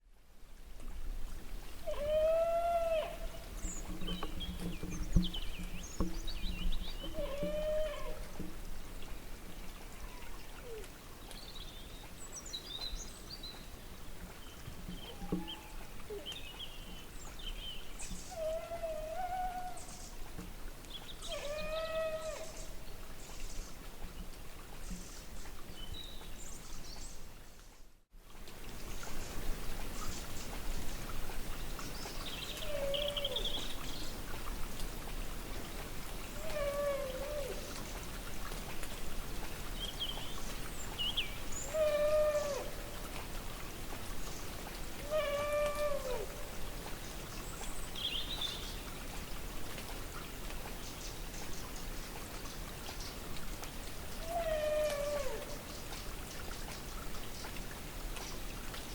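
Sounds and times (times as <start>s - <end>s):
distant animal calling: 1.8s - 3.5s, 7.0s - 8.3s, 21.2s - 22.7s, 36.4s - 37.7s, 41.6s - 42.8s.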